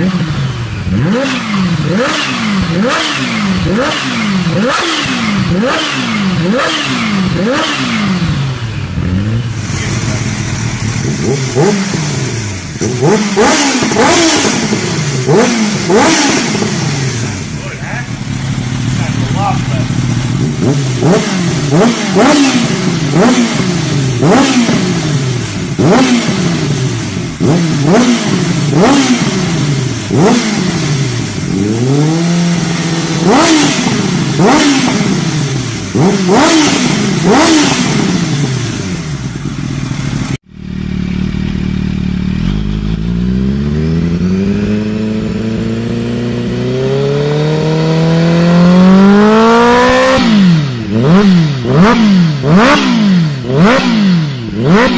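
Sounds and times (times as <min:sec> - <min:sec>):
motorcycle engine revving: 0:00.0 - 0:54.9
exhaust cracks: 0:08.2 - 0:43.2.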